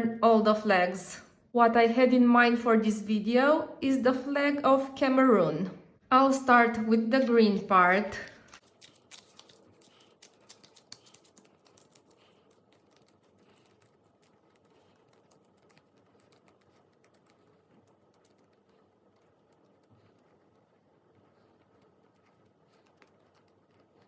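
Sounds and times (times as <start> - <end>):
slime clicking and popping: 8.6 - 13.2.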